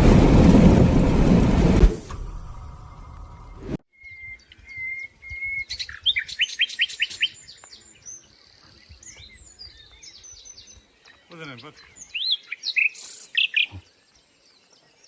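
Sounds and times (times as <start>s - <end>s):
whistled bird notes: 3.5s - 10.8s
birds singing: 4.0s - 15.0s.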